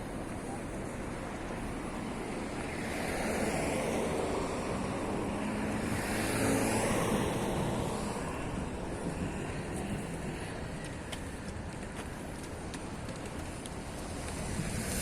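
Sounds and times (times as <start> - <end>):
motor vehicle passing: 2.6 - 11.8, 12.4 - 15.0.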